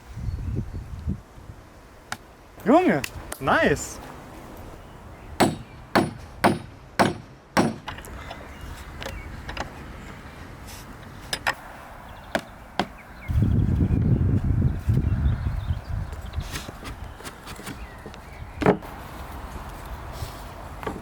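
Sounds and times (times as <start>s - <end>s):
wooden boards knocking: 12.4s - 13.0s.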